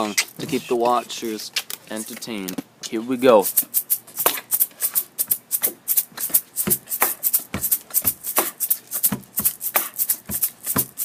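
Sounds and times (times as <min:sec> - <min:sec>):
beatboxed hi-hat hissing: 0:03.3 - 0:11.0
beatboxed kick thumps: 0:04.2 - 0:11.0.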